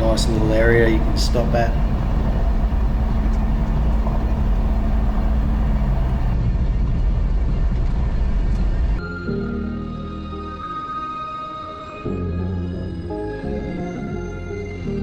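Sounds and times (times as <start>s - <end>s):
tyre and road rumble: 0.0s - 6.4s
vehicle engine hum: 0.0s - 6.4s.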